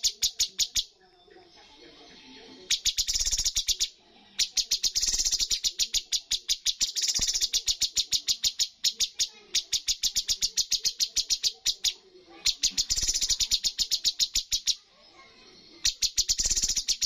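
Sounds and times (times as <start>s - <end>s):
songbird calling sharp high notes: 2.7s - 14.8s, 15.9s - 17.0s.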